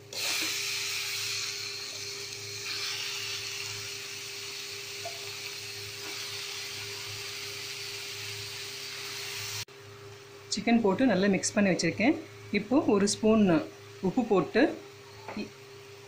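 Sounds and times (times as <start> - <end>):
chicken sizzling in hot oil: 0.0 - 9.7.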